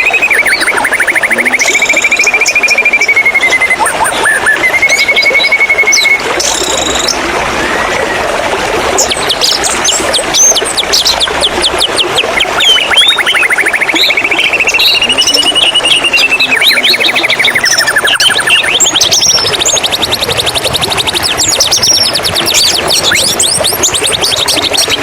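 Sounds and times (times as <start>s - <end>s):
songbird trilling and chirping: 0.0s - 3.8s, 4.5s - 7.1s, 11.8s - 23.8s
flowing water rushing: 0.0s - 25.0s.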